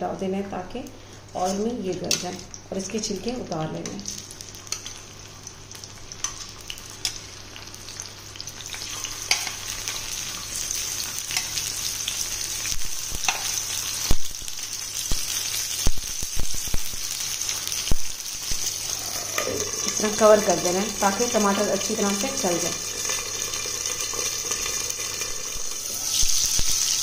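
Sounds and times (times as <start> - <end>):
tomatoes sizzling in hot oil: 0.6 - 27.0
sharp crackles and pops: 12.5 - 18.9.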